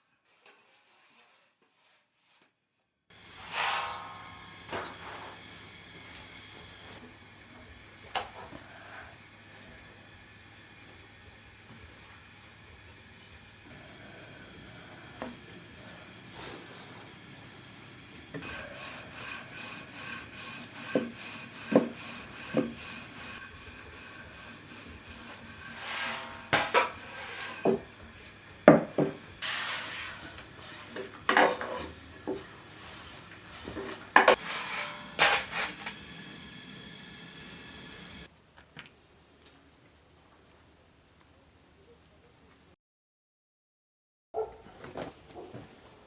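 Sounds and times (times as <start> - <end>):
rubbing and scraping on wood: 18.4 - 27.9, 29.0 - 35.8.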